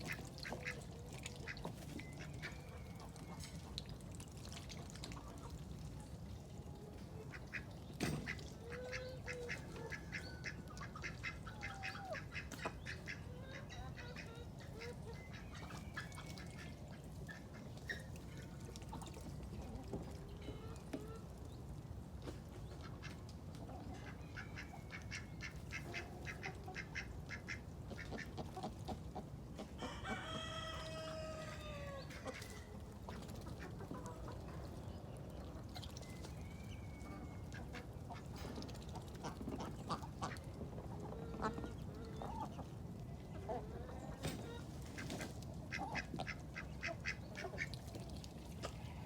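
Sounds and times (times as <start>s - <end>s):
chickens clucking: 0.0s - 4.1s, 4.8s - 49.0s
rooster crowing: 29.8s - 32.0s.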